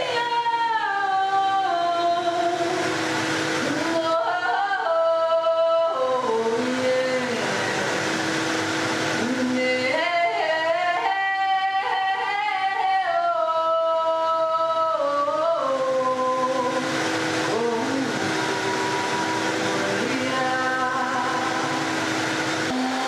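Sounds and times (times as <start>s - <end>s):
blender running: 2.0s - 4.2s, 6.2s - 10.2s, 16.0s - 23.0s
woman singing wordless held notes: 3.6s - 7.9s, 9.2s - 22.0s.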